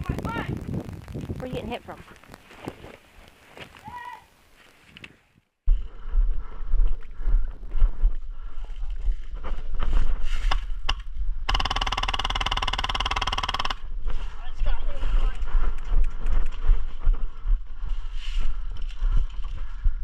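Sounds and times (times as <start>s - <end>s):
wind buffeting microphone: 0.0s - 2.9s
airsoft gun firing full auto: 11.5s - 13.8s
sharp clicks: 15.4s - 16.7s.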